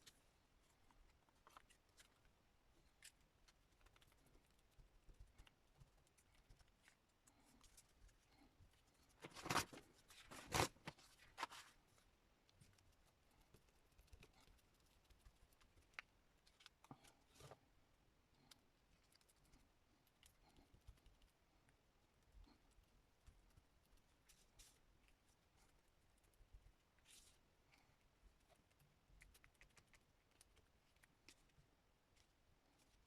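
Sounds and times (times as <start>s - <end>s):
paper rustling: 9.0s - 12.0s.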